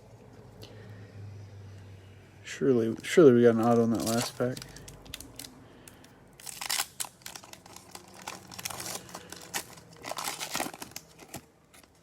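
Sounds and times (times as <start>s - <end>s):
foil wrapper tearing and crinkling: 3.6s - 5.6s, 6.4s - 12.0s.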